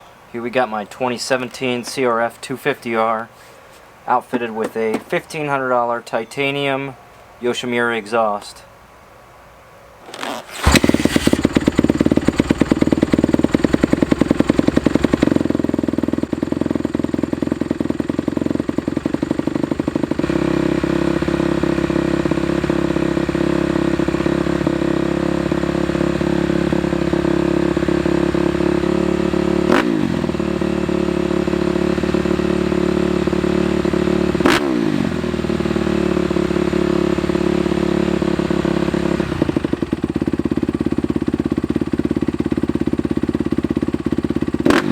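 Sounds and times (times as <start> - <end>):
dirt bike engine idling: 10.5 - 44.9.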